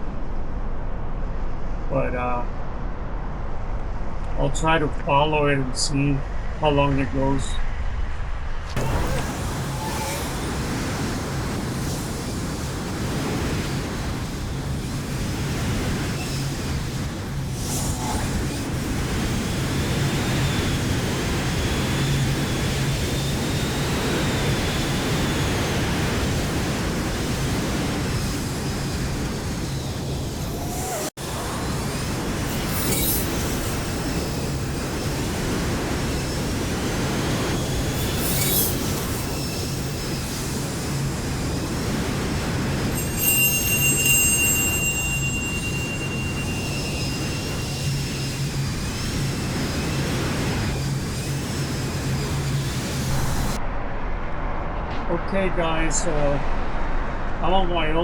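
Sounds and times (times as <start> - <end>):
wind rushing over microphone: 0.0 - 58.0
high hiss: 8.8 - 53.6.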